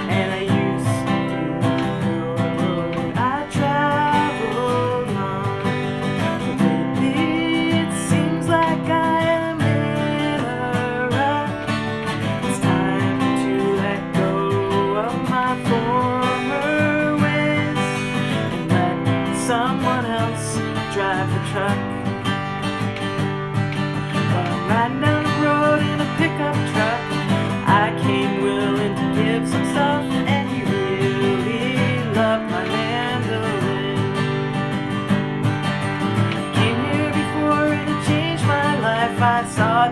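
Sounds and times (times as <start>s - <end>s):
acoustic guitar strumming: 0.0s - 39.9s.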